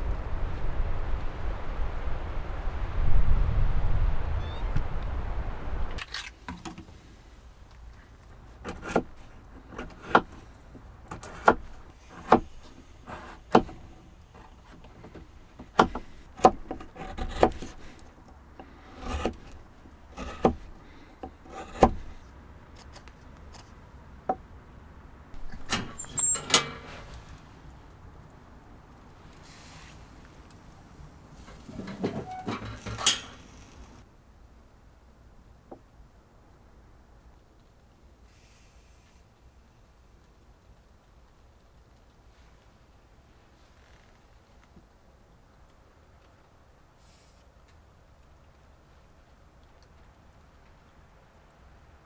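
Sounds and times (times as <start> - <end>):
sharp clicks and knocks: 8.6 - 23.7, 25.4 - 27.5, 31.5 - 34.0.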